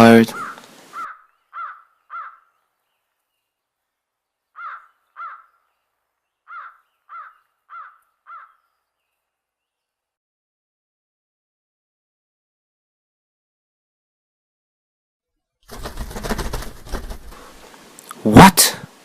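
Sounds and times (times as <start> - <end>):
crow cawing: 0.3 - 2.6, 4.6 - 5.7, 6.5 - 8.7.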